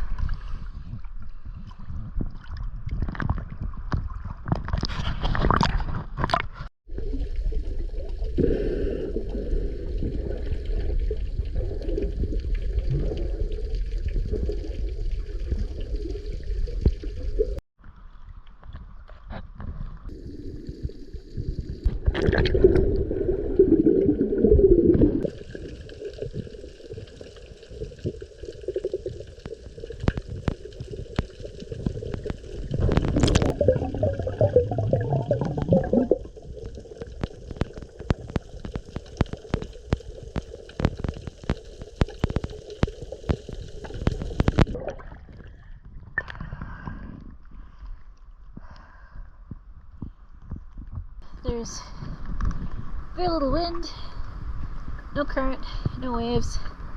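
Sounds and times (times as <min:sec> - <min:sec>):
water gurgling: 0:00.0 - 0:17.6, 0:20.0 - 0:47.2.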